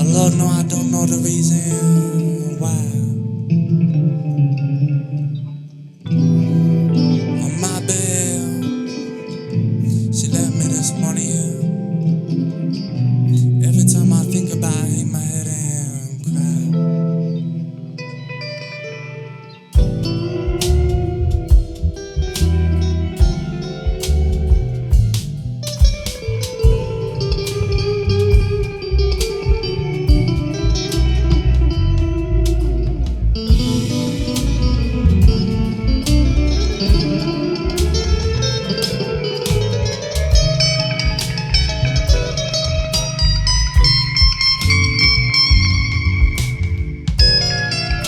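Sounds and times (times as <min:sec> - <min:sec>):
bass line: 0:00.0 - 0:04.9, 0:19.8 - 0:48.0
blues guitar lead: 0:00.0 - 0:48.0
steady beat: 0:19.8 - 0:48.0.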